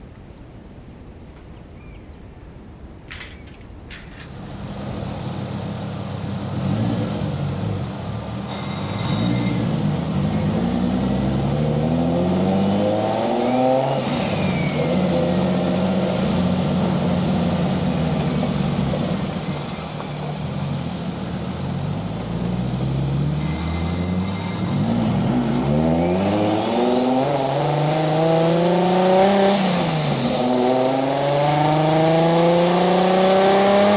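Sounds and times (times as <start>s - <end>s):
car engine accelerating through gears: 4.6s - 33.9s.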